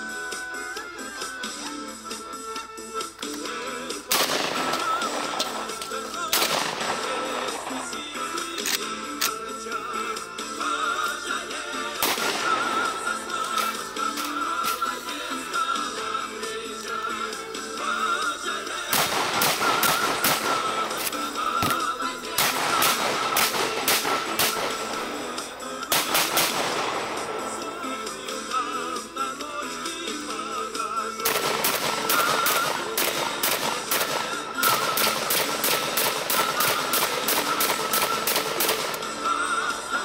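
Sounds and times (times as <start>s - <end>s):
background music: 0.0s - 40.0s
shotgun shots in rapid strings: 4.1s - 8.5s, 12.0s - 14.8s, 18.7s - 28.1s, 31.2s - 39.2s.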